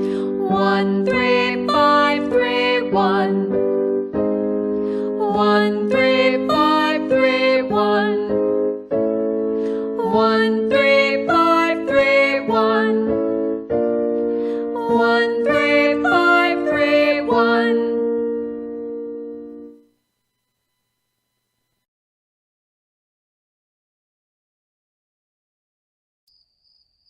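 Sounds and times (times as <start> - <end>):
keyboard piano runs over chords: 0.0 - 19.8.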